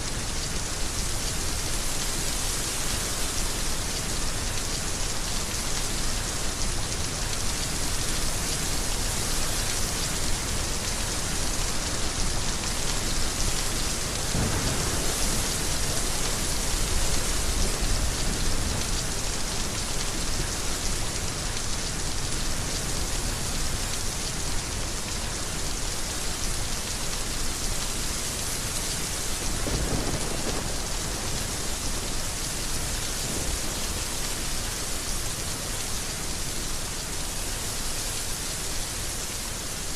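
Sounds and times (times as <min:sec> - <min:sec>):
heavy rain falling: 0:00.0 - 0:39.9
low rumbles of thunder: 0:14.3 - 0:18.8, 0:29.4 - 0:34.0.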